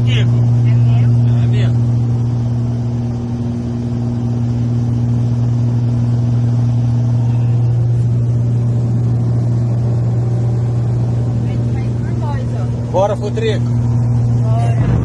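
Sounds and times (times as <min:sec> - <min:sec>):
aircraft propeller engines droning: 0:00.0 - 0:15.0.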